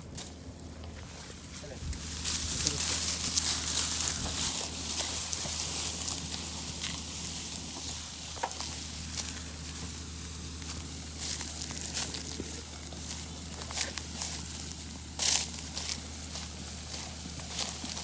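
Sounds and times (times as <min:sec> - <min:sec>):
rustles: 0:00.0 - 0:18.0
tractor diesel engine idling: 0:00.0 - 0:18.0.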